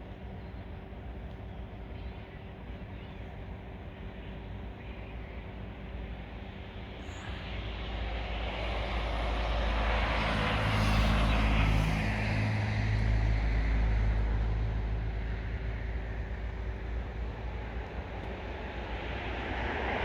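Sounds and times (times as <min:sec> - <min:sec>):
passing vehicle engine rumble: 0:06.7 - 0:20.0.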